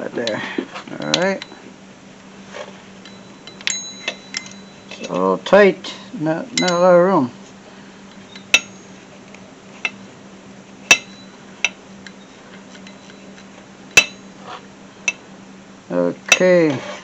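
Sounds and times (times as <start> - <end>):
hand tools clinking against metal: 0.2 - 1.6, 3.0 - 5.5, 6.5 - 7.1, 8.2 - 9.0, 10.9 - 11.3.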